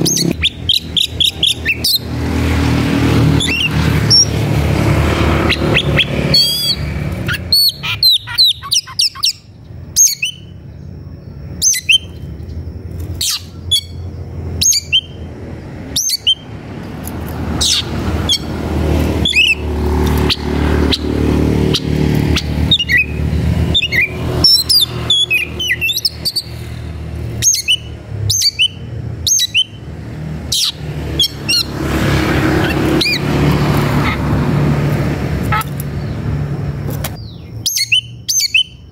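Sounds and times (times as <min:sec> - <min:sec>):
bird whistling and chirping: 0:00.0 - 0:02.1, 0:03.4 - 0:04.3, 0:05.4 - 0:10.6, 0:11.6 - 0:12.2, 0:13.2 - 0:15.3, 0:16.0 - 0:16.4, 0:19.2 - 0:19.6, 0:20.3 - 0:26.6, 0:27.4 - 0:29.8, 0:37.2 - 0:38.9.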